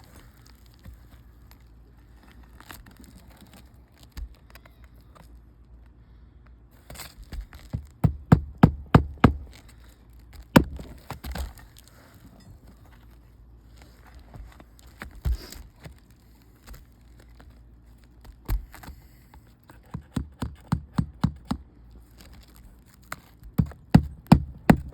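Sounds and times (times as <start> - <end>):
shingles rustling: 6.8 - 19.2, 22.0 - 24.9
hammer striking nails: 7.8 - 9.6, 10.6 - 11.0, 19.9 - 21.6, 23.6 - 24.9.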